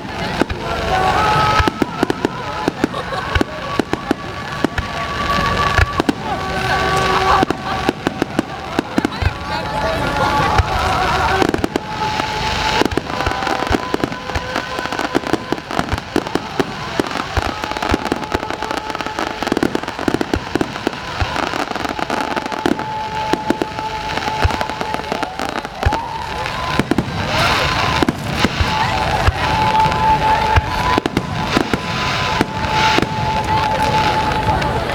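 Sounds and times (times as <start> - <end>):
fireworks bursting and crackling: 0.0 - 34.9.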